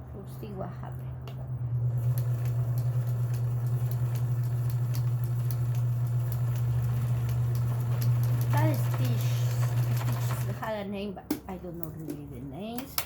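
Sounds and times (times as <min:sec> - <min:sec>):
sewing machine motor hum: 0:01.4 - 0:10.7.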